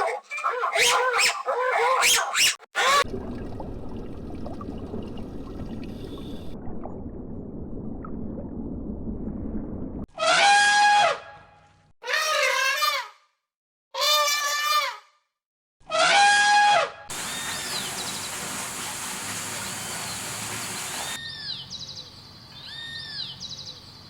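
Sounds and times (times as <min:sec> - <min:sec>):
loud pitched animal call: 0:00.0 - 0:03.0
warbling animal calls: 0:00.0 - 0:03.0
low rumbling noise: 0:03.1 - 0:10.1.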